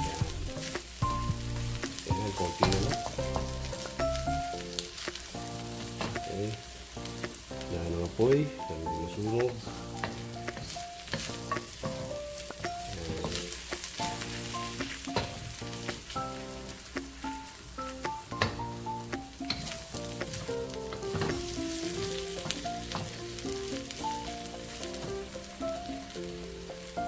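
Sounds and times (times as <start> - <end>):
food sizzling in a wok: 0.0 - 27.0
gentle background music: 0.0 - 27.0
spatula scraping a pan: 9.2 - 16.5.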